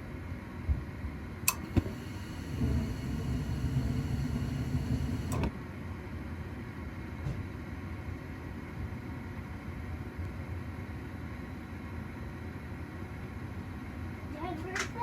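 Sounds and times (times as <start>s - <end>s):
furnace rumble: 1.1s - 5.6s.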